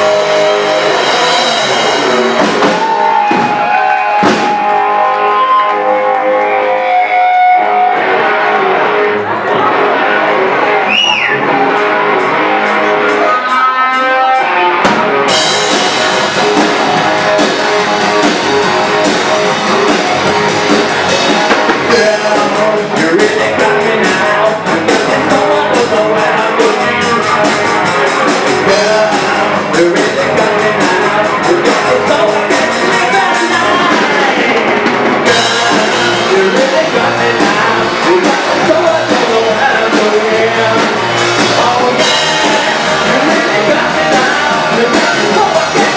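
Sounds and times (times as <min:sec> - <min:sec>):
drums and cymbals: 0:00.0 - 0:04.9, 0:13.9 - 0:45.9
electric guitar: 0:00.0 - 0:45.9.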